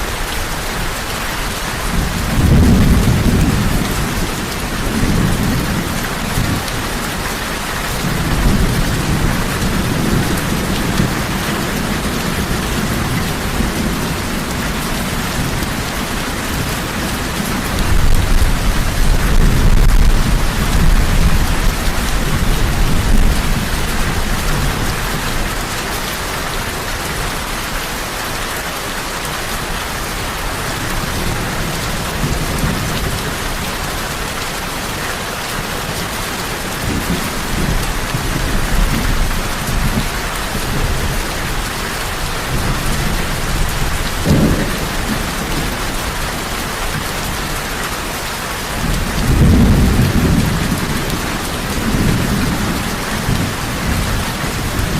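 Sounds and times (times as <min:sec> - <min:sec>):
heavy rain falling: 0:00.0 - 0:54.9
thunder rumbling: 0:01.8 - 0:07.2, 0:08.0 - 0:25.7, 0:36.5 - 0:47.5, 0:48.6 - 0:54.9.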